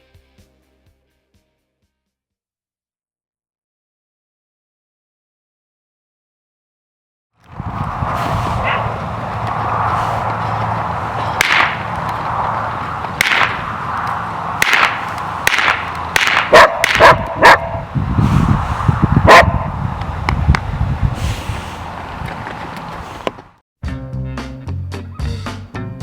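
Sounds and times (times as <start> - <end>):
outdoor noise rush: 7.4 - 23.6
dog barking: 8.6 - 8.9, 16.5 - 17.8, 19.2 - 19.7.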